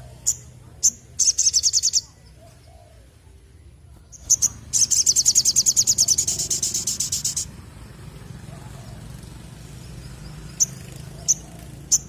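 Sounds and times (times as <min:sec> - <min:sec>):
sunbird singing fast trills: 0:00.0 - 0:03.1, 0:04.0 - 0:08.2, 0:08.9 - 0:12.0.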